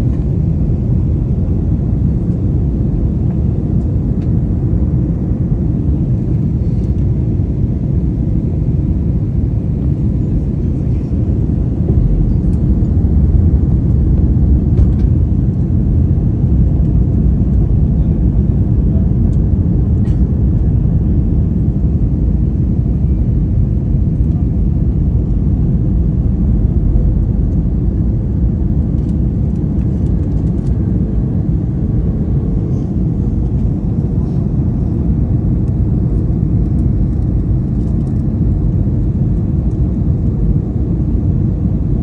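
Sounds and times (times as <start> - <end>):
airliner cabin engine rumble: 0.0 - 42.0.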